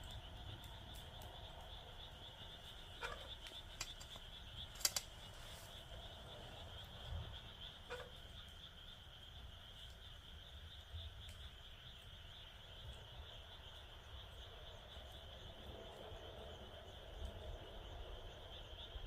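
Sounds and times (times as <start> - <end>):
wood fire crackling and popping: 0.0 - 13.4
crickets chirping: 0.0 - 19.0
frogs calling: 0.0 - 19.0.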